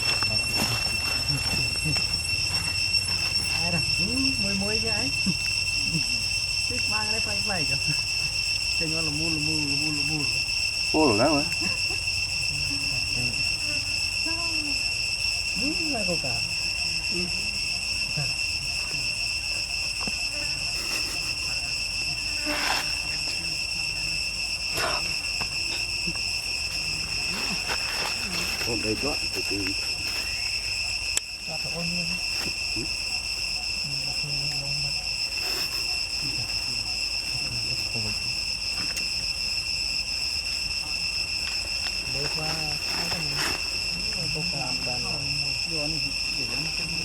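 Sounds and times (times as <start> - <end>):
insects droning in chorus: 0.0 - 47.0
faint low murmurs: 31.5 - 38.7.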